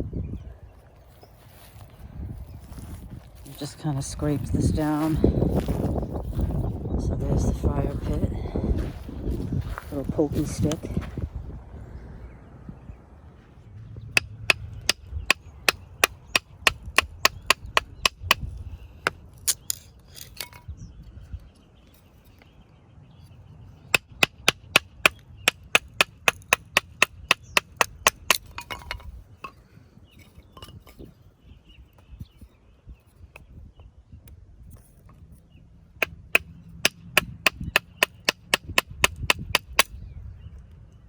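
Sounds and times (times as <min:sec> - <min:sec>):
wood being chopped: 0:14.2 - 0:18.5, 0:24.0 - 0:29.0, 0:36.0 - 0:39.9.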